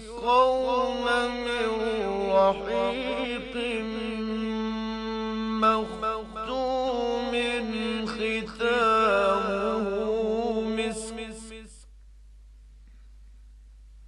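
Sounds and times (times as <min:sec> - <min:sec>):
man chanting melodically: 0:00.0 - 0:11.9.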